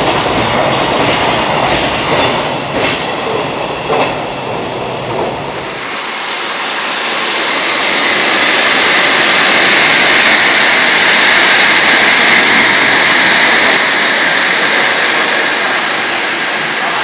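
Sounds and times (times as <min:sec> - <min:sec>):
electric train rushing hiss: 0:00.0 - 0:17.0.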